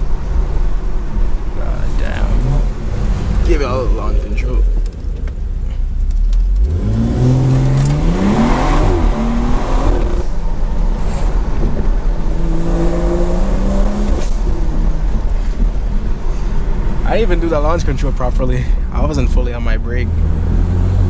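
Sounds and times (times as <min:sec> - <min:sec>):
car engine accelerating hard: 0:06.5 - 0:18.2, 0:19.9 - 0:21.0.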